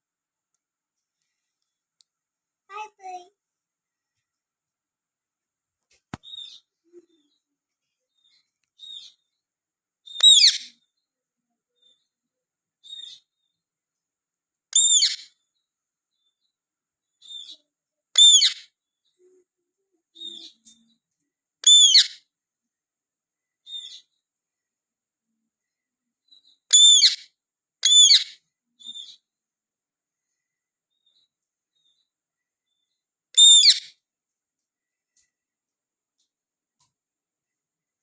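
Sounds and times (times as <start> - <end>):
parakeet shrill calls: 10.2 - 10.7, 14.8 - 15.3, 18.2 - 18.6, 21.6 - 22.2, 26.7 - 27.2, 27.8 - 28.4, 33.4 - 33.9.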